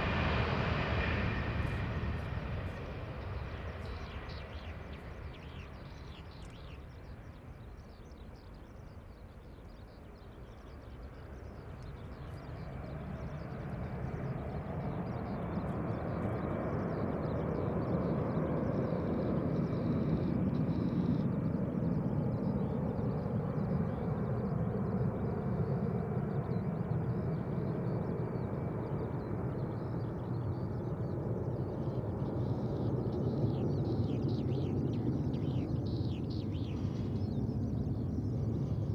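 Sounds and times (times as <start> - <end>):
jet engines at take-off power: 0.0 - 38.9.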